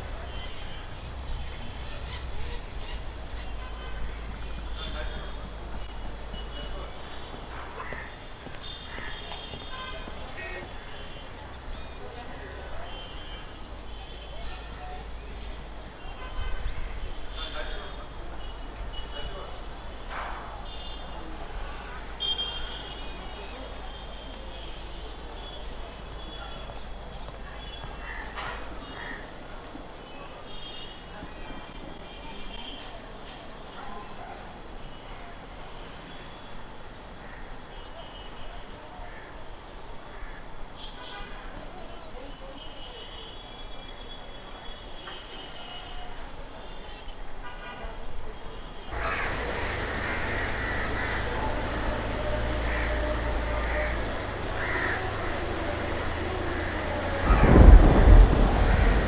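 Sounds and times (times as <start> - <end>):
insect high trill: 48.7 - 59.0
insect pulsing chirp: 48.7 - 59.0.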